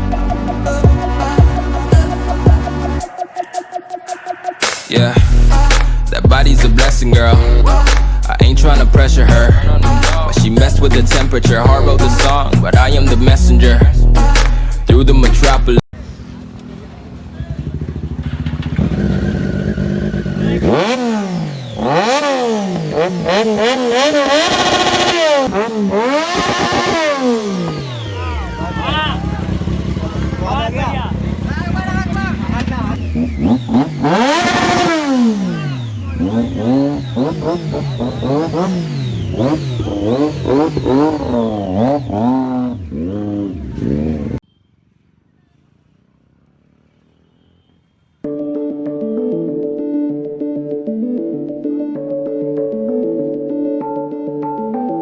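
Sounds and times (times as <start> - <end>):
motorcycle engine revving: 15.1 - 44.4.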